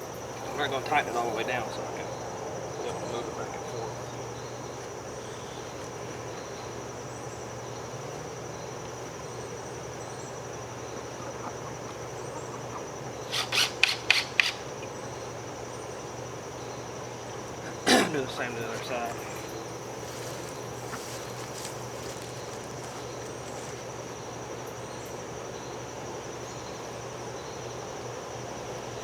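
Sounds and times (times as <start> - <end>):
ratchet wrench rasping: 13.3 - 14.6.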